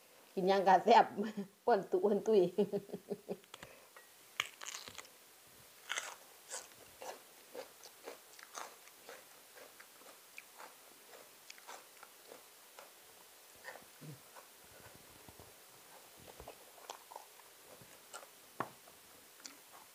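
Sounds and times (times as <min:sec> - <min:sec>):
person chewing crunchy food: 0:04.4 - 0:05.1, 0:05.8 - 0:18.4.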